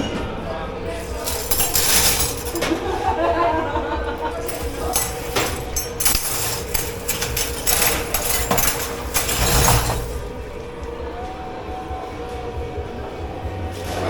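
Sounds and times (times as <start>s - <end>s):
dishes and cutlery clattering: 1.0s - 3.2s, 4.2s - 10.3s.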